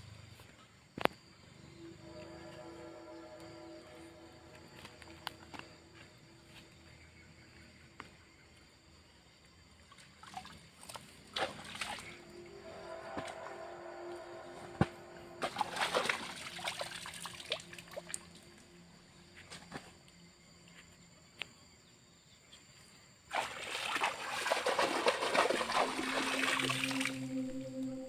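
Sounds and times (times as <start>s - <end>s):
water splashing and sloshing: 9.8s - 18.6s, 23.3s - 27.5s.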